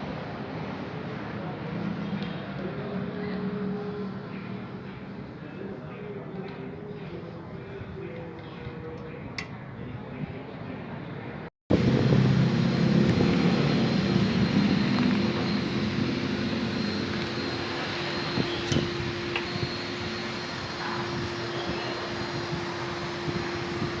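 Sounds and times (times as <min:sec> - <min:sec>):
motor running: 0:11.8 - 0:24.0.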